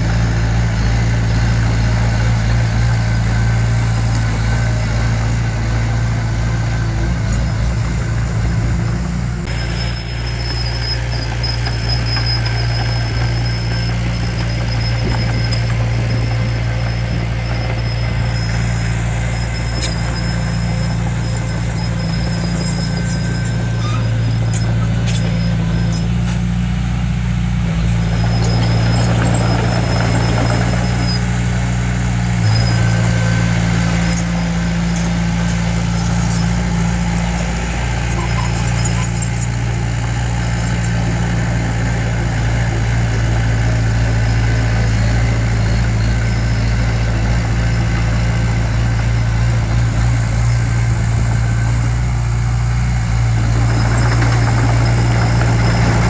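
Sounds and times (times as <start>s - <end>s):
diesel engine running: 0.0s - 56.0s
high squeaks and clicks: 9.4s - 26.6s, 27.7s - 31.5s, 32.4s - 42.6s.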